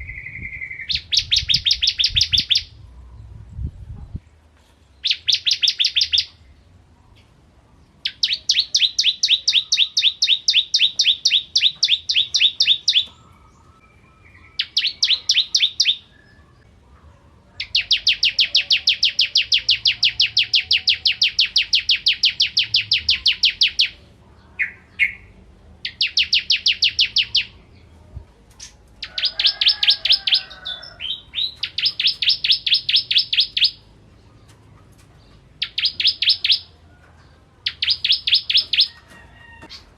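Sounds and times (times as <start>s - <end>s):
bird trilling song: 0.0s - 4.3s, 4.9s - 7.3s, 8.0s - 16.7s, 17.6s - 39.9s.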